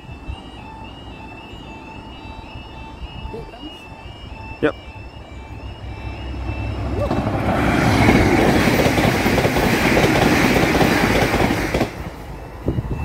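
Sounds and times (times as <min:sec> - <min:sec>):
diesel train passing at speed: 0:00.0 - 0:13.0
two-tone crossing alarm: 0:00.0 - 0:13.0
wheels clacking over rail joints: 0:06.4 - 0:12.3.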